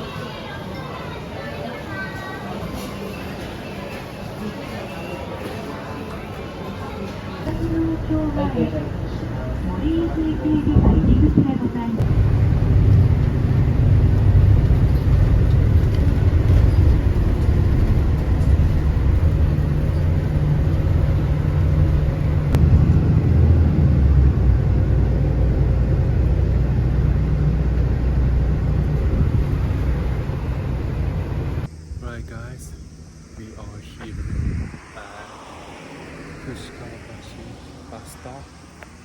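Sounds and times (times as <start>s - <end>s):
bus engine and road rumble: 0.0s - 39.0s.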